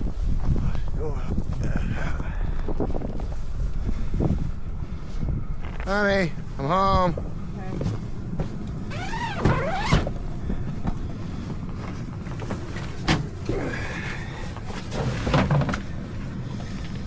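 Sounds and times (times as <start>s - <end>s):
steady low rumble: 0.0s - 17.0s
tent zipper squealing: 8.9s - 10.2s.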